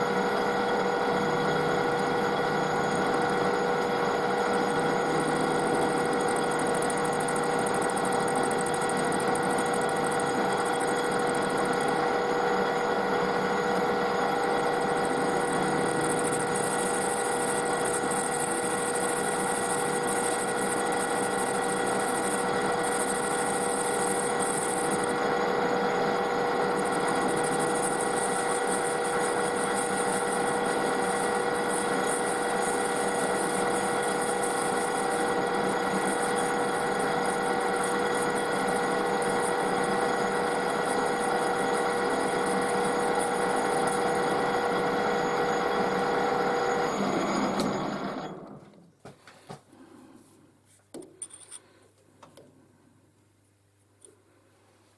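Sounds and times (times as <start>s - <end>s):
metal lathe whine: 0.0s - 48.8s.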